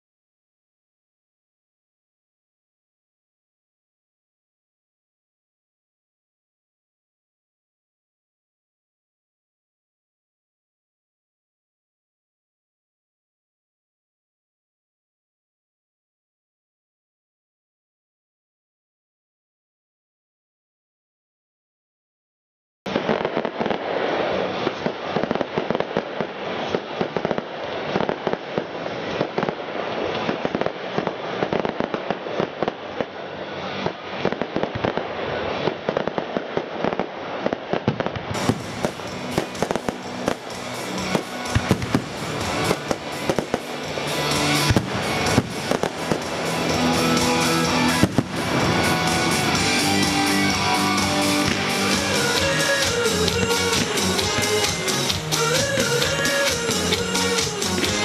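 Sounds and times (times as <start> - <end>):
fireworks bursting and crackling: 22.9 - 58.0
music soundtrack: 38.3 - 58.0.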